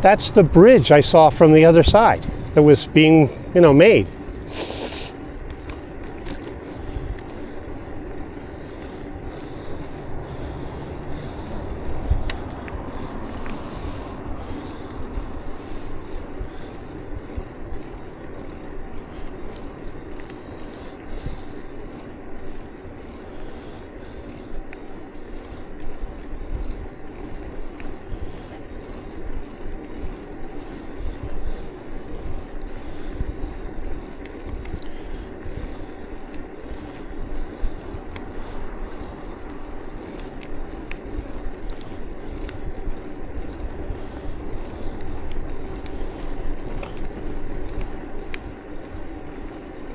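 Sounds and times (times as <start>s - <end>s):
wind buffeting microphone: 0.0s - 4.6s, 5.2s - 22.3s
bicycle tyre and road noise: 0.0s - 49.9s
bike clicks and rattles: 0.0s - 49.9s.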